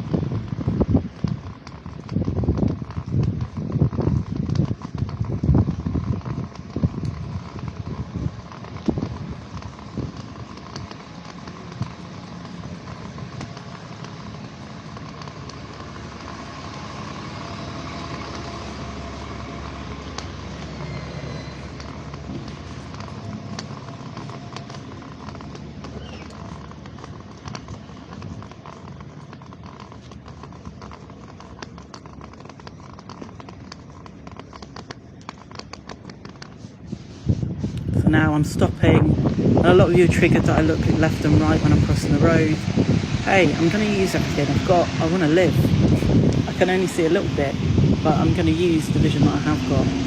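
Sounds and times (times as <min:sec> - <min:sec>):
white cane tapping pavement: 0:00.0 - 0:49.9
large vehicle engine running: 0:00.0 - 0:50.0.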